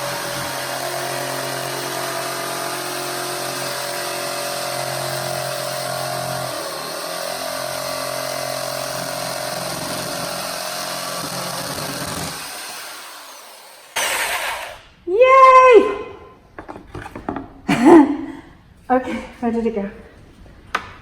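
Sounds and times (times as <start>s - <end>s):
jigsaw cutting wood: 0.0s - 14.9s.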